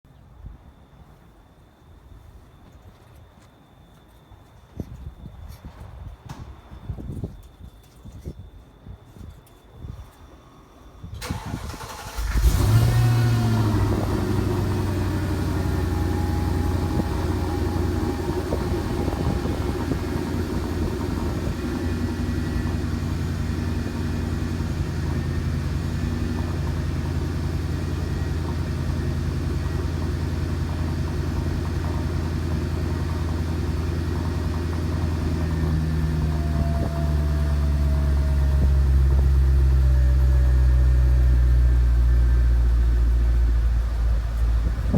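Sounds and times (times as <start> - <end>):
car engine starting and idling: 11.1 - 44.9.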